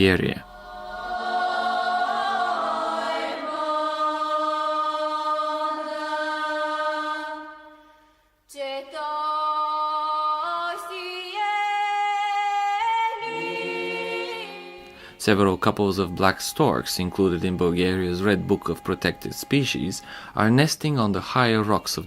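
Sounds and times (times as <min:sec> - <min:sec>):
choir singing long held notes: 0:00.0 - 0:20.6.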